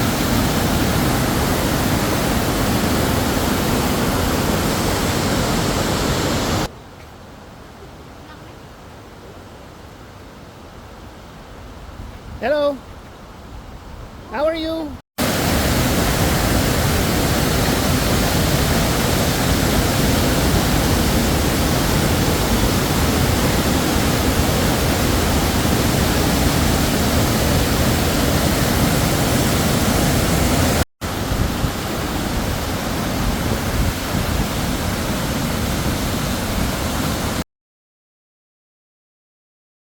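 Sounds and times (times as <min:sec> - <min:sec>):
waterfall rushing: 0:00.0 - 0:06.7, 0:15.2 - 0:37.4.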